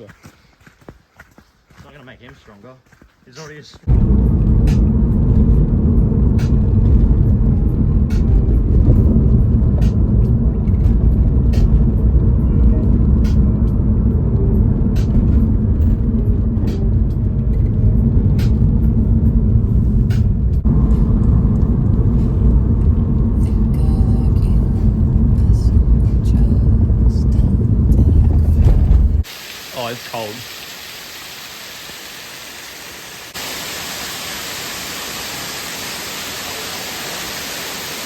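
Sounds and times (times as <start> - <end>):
waterfall rushing: 29.2 - 38.0.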